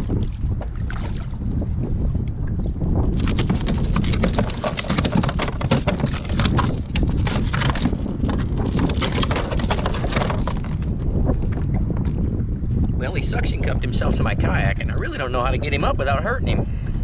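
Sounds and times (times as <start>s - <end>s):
knocks and splashes: 0.0s - 1.6s, 3.1s - 12.2s
wind rumbling on microphone: 0.0s - 17.0s.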